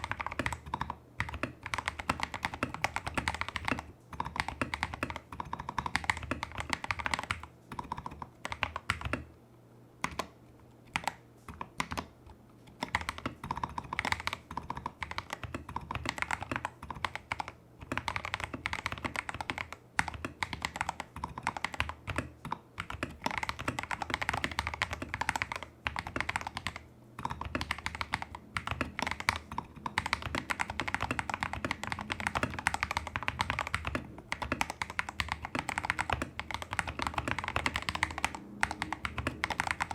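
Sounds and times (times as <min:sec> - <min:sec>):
mechanical keyboard typing: 0:00.0 - 0:09.3, 0:10.0 - 0:39.9.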